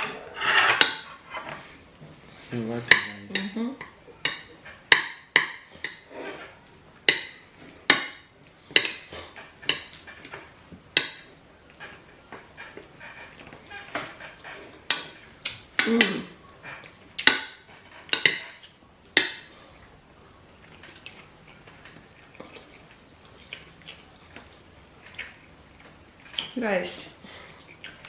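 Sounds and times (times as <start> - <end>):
cutlery clinking on plates: 0.0 - 1.6, 2.8 - 19.6.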